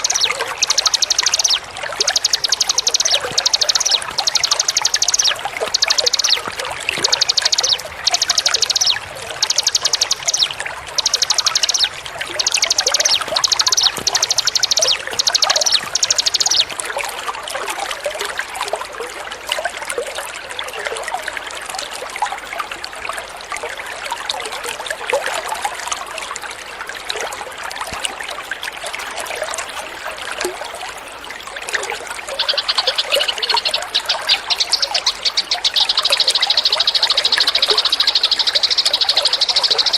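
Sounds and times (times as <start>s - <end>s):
songbird high trills: 0.0s - 16.8s, 32.3s - 39.9s
running water trickling: 0.0s - 39.9s.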